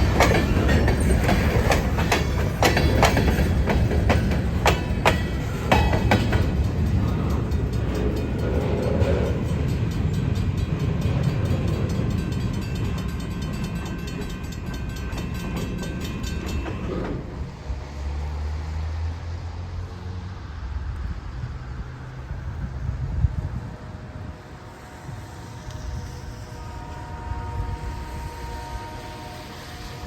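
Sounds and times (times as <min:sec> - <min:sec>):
wheels clattering over rails: 0:00.0 - 0:17.6
train rumble: 0:00.0 - 0:30.0.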